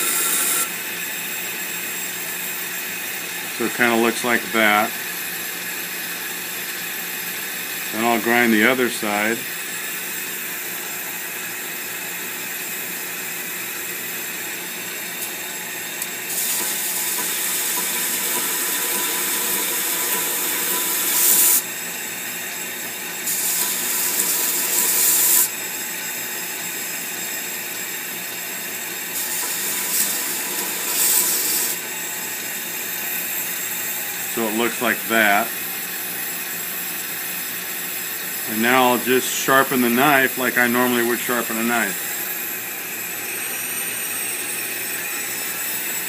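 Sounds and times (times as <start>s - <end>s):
power grinder running: 0.0s - 0.8s, 15.9s - 21.8s, 23.2s - 25.5s, 28.9s - 35.8s
knife blade hissing on grinder: 16.3s - 21.7s, 23.2s - 25.5s, 29.1s - 31.8s.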